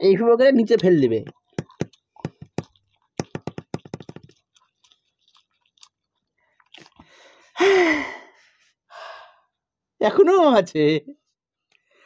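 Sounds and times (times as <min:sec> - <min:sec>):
wet chewing clicks: 0:01.2 - 0:07.3.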